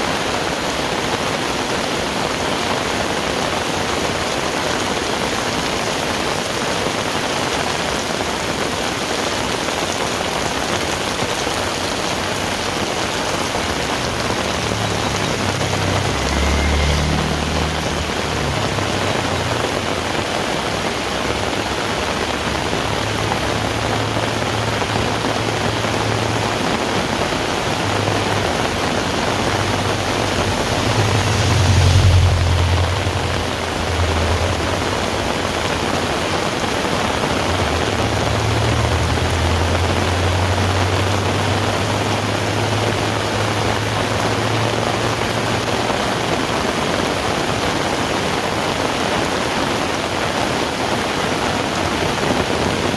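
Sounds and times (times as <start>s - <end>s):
heavy rain falling: 0.0s - 52.9s
low rumble: 27.9s - 36.1s.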